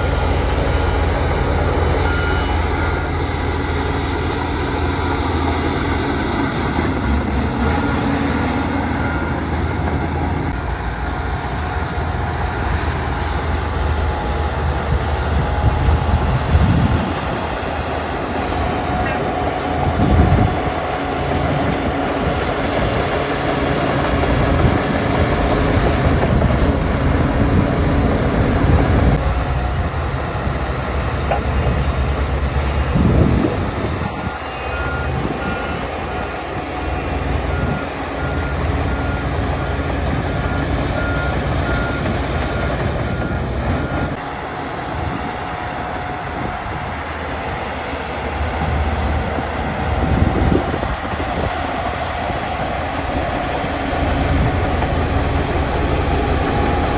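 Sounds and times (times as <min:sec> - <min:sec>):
reversing alarm beeping: 0:00.0 - 0:11.1, 0:33.0 - 0:44.2
heavy diesel machinery running: 0:00.0 - 0:56.9.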